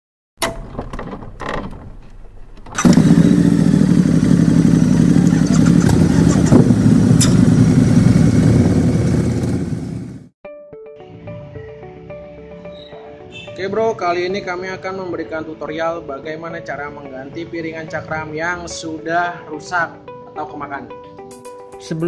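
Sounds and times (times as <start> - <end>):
motorcycle engine running: 2.8 - 10.3.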